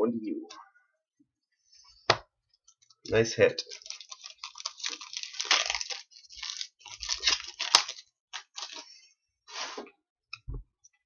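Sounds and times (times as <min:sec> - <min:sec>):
wrapper tearing and crinkling: 0:03.5 - 0:09.0.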